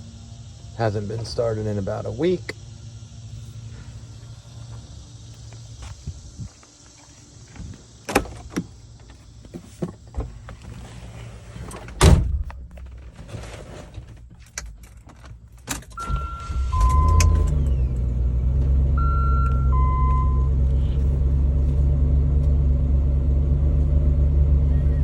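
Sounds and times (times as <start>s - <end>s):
car engine starting and running: 8.0s - 25.0s
car door shutting: 8.1s - 8.7s, 11.6s - 14.6s, 15.6s - 21.2s.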